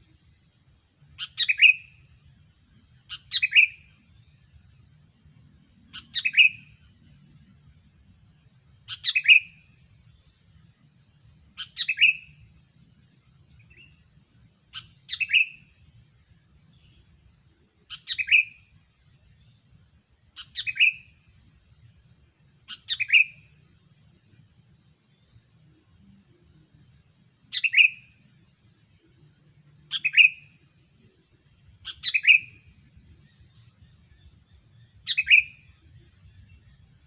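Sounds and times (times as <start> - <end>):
bulbul calling: 1.2 - 2.0, 3.1 - 4.0, 5.9 - 6.9, 8.9 - 9.7, 11.6 - 12.5, 14.7 - 15.7, 17.9 - 18.7, 20.4 - 21.2, 22.7 - 23.6, 27.5 - 28.2, 29.8 - 30.6, 31.8 - 36.9.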